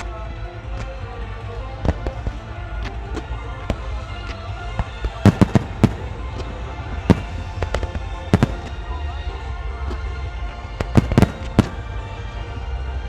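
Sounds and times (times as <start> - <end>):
fireworks bangs: 5.2 - 9.2, 11.0 - 12.2.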